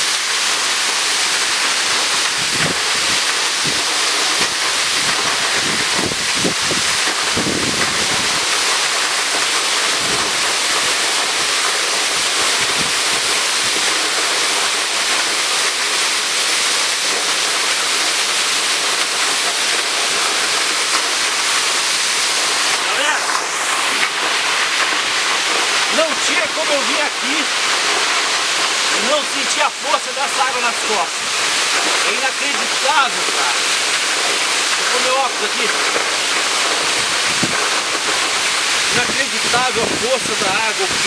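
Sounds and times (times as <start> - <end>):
waterfall rushing: 0.0 - 41.0
wind buffeting microphone: 2.3 - 8.5, 10.0 - 10.4, 12.6 - 13.8, 36.8 - 41.0.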